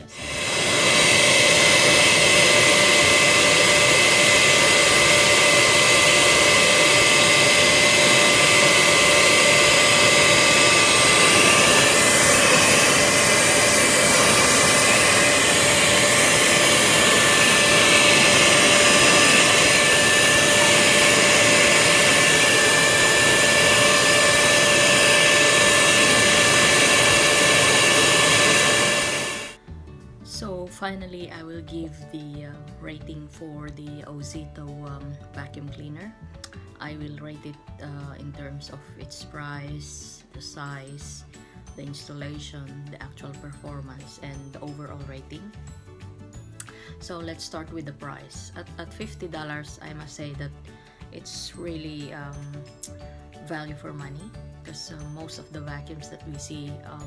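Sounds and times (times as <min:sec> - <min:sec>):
vacuum cleaner running: 0:00.0 - 0:29.6.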